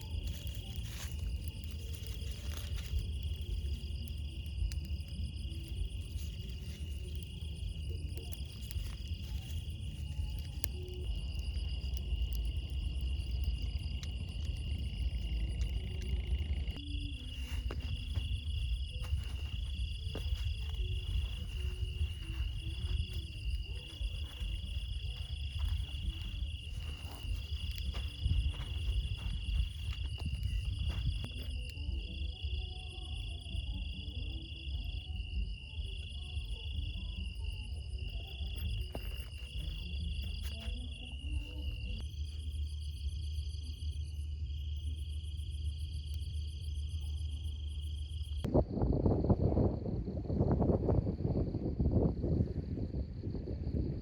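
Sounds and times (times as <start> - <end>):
low rumble: 0.0 - 32.3
insect trill in bursts: 0.0 - 34.0, 34.6 - 48.4
crickets trilling: 0.0 - 54.0.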